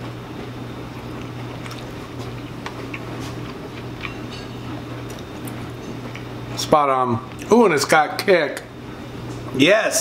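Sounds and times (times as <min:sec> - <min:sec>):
man chewing food: 0:00.0 - 0:06.6
steady low hum: 0:00.0 - 0:10.0.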